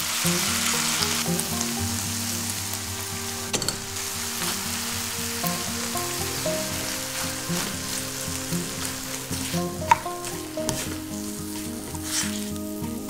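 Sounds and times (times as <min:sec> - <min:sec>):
food sizzling in a frying pan: 0:00.0 - 0:13.0
soft background music: 0:00.0 - 0:13.0
spatula stirring: 0:03.5 - 0:13.0.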